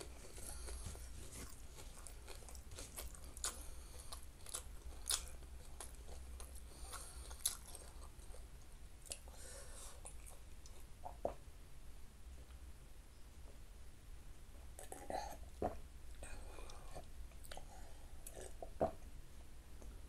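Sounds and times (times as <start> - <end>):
person chewing: 0.0 - 11.4, 14.8 - 19.0.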